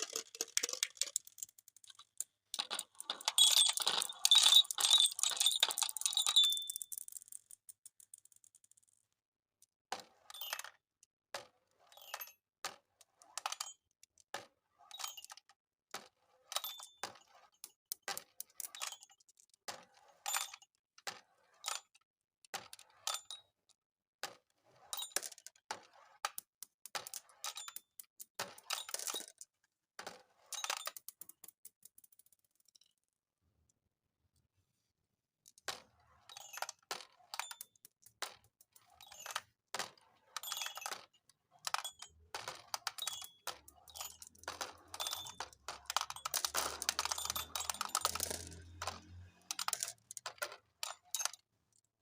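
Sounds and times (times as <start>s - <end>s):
marbles clattering down track: 0.0s - 9.1s, 24.2s - 32.7s, 35.6s - 51.4s.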